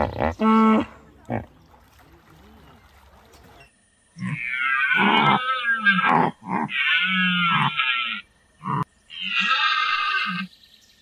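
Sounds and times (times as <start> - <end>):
animal calling: 4.2 - 10.5.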